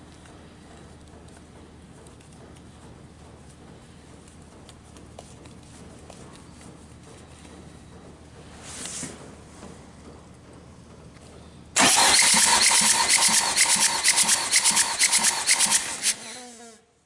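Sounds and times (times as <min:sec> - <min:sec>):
engine cranking by starter motor: 0:11.8 - 0:16.6
starter motor winding down whine: 0:11.8 - 0:16.6.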